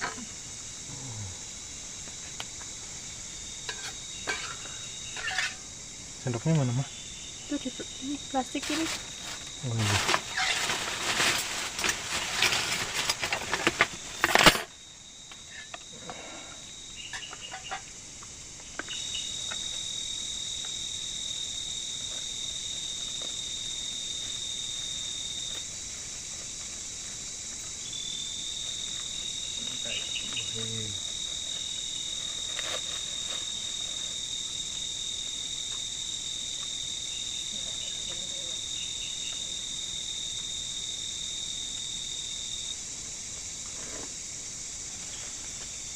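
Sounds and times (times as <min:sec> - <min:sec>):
night insects trilling: 0:00.0 - 0:45.9
handling rustling and clatter: 0:08.6 - 0:14.8.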